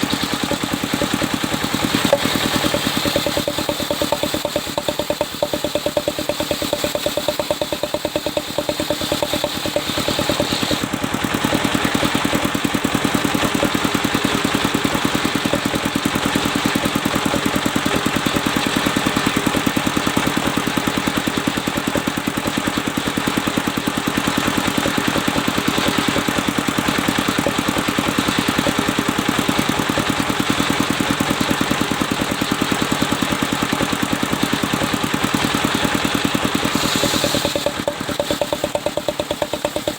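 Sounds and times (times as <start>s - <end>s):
circular sawmill droning: 0.0s - 39.9s
saw blade cutting log: 0.0s - 39.9s.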